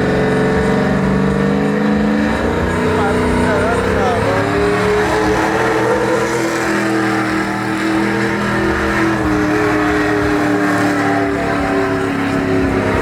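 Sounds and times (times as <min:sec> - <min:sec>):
truck engine revving high: 0:00.0 - 0:13.0.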